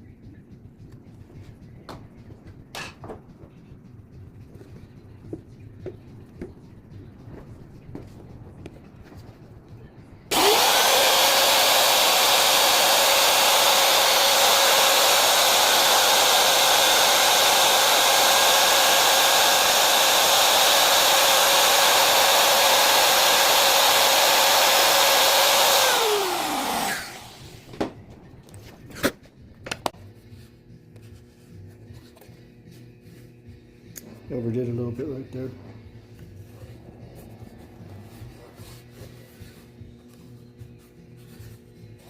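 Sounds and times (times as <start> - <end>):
wood router whining: 10.3 - 27.9.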